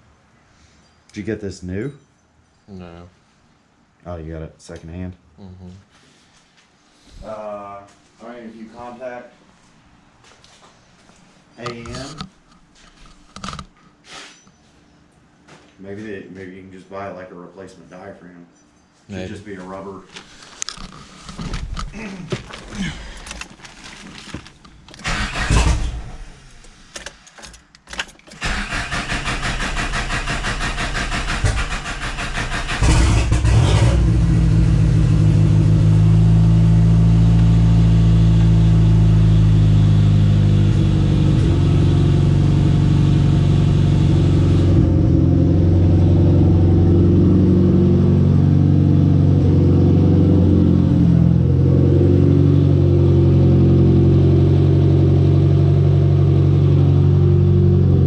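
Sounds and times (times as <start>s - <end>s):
car engine cranking: 20.6s - 35.2s.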